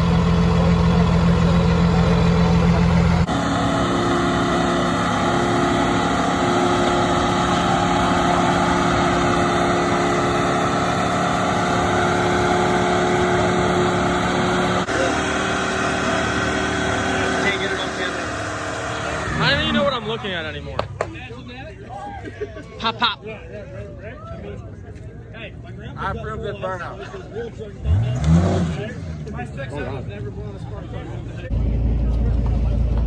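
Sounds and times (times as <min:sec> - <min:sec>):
diesel truck engine idling: 0:00.0 - 0:21.7.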